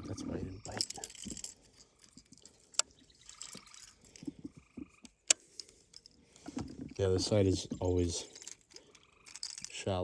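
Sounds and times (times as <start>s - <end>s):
frogs calling: 0.0s - 5.3s, 7.8s - 9.7s.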